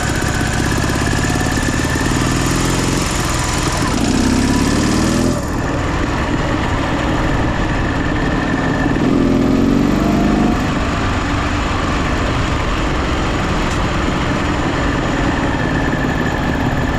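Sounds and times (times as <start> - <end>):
motorcycle engine running: 0.0 - 16.9.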